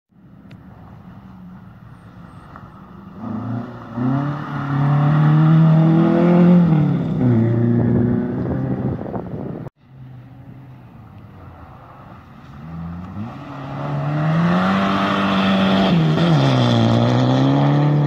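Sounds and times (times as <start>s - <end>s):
rally car engine revving past: 3.1s - 9.1s, 12.6s - 18.0s.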